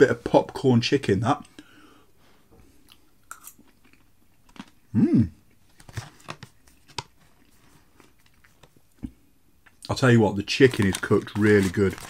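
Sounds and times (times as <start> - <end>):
person chewing crunchy food: 2.8 - 5.6
closed-mouth hum: 4.9 - 5.6.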